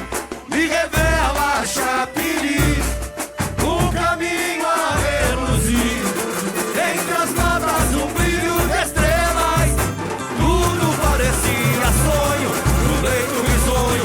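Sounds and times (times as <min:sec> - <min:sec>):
drum section with bass drum: 0:00.0 - 0:14.0
voices singing: 0:00.0 - 0:14.0.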